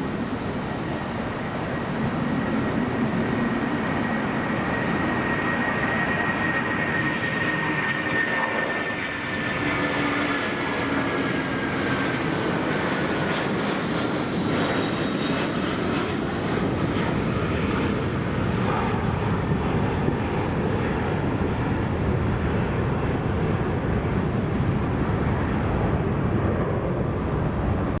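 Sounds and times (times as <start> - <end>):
high hiss of jet engines: 0.0 - 7.8
jet engines deep rumble: 0.0 - 28.0.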